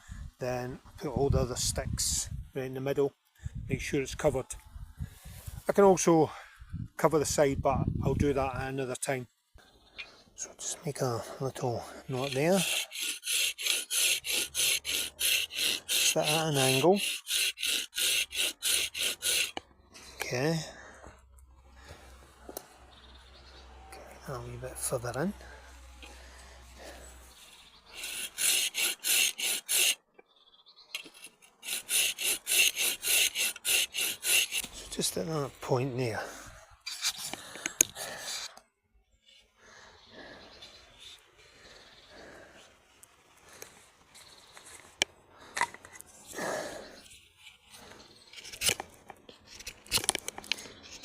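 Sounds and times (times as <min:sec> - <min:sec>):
knife scraping wood: 0:11.0 - 0:19.6, 0:26.8 - 0:30.1, 0:31.0 - 0:35.2, 0:36.8 - 0:38.6, 0:43.5 - 0:51.0
hand saw cutting wood: 0:11.1 - 0:19.6, 0:27.9 - 0:30.1, 0:31.0 - 0:35.0.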